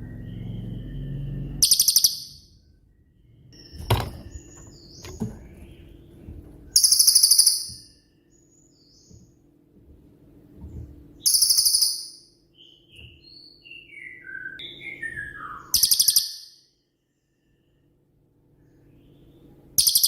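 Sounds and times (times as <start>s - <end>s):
brief knocks: 3.8s - 6.6s.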